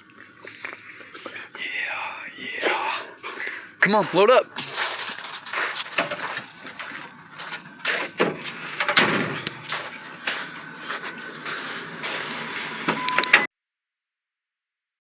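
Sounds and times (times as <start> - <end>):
scuffling and rustling: 3.3 - 12.9.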